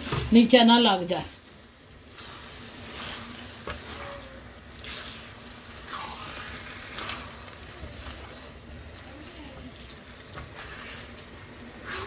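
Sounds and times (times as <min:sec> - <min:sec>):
food sizzling in a pan: 0:00.0 - 0:12.0
wooden spoon scraping a pan: 0:02.1 - 0:08.6.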